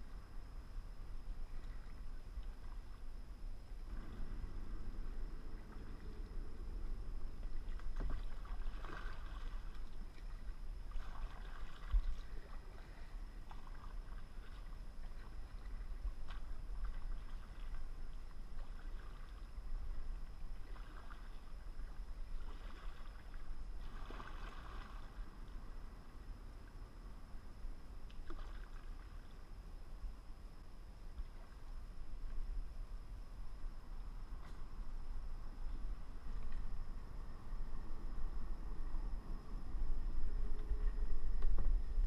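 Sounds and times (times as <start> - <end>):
steady low rumble: 0.0 - 42.0
paddle splashing into water: 7.4 - 17.9, 20.6 - 25.2, 28.2 - 29.3.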